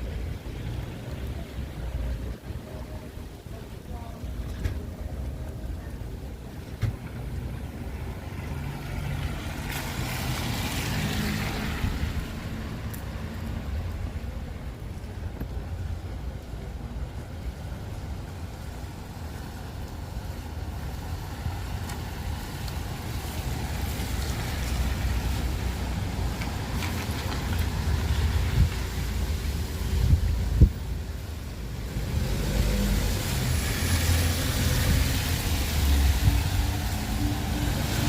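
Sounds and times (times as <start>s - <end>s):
traffic on wet road: 0.0s - 38.0s
wind buffeting microphone: 25.8s - 31.1s.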